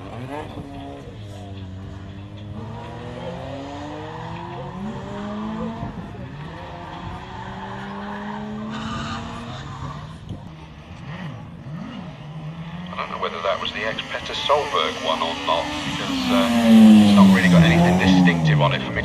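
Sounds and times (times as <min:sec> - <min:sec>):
rally car engine accelerating: 0:00.0 - 0:19.0
tyre squeal: 0:07.6 - 0:10.1.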